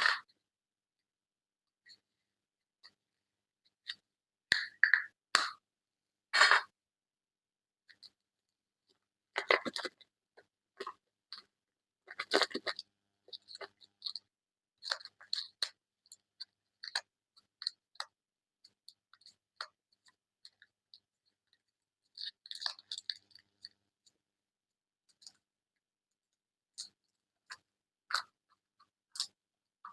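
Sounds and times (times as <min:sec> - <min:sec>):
small clicks and ticks: 0:08.9 - 0:24.2, 0:25.0 - 0:25.5, 0:26.1 - 0:29.9.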